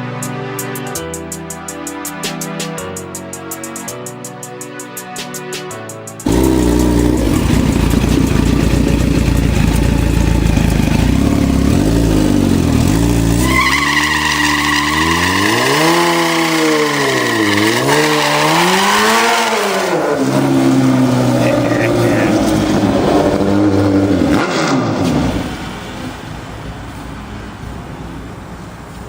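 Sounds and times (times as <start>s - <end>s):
motorcycle engine revving: 6.2s - 26.0s.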